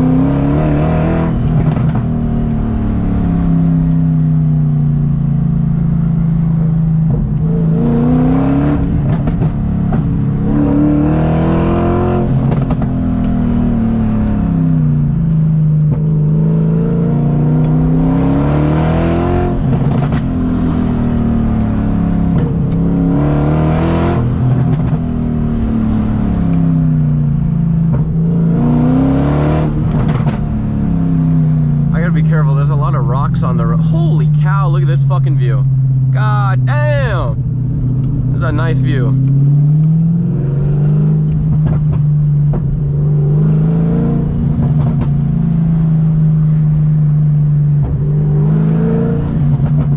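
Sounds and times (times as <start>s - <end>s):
car exhaust accelerating: 0.0s - 49.9s.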